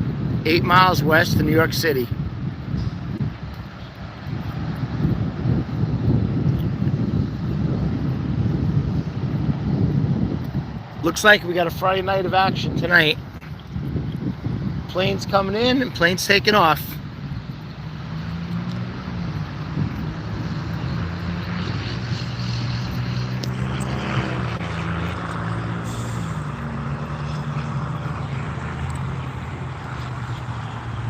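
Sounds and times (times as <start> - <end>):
airplane engine drone: 17.4 - 31.0.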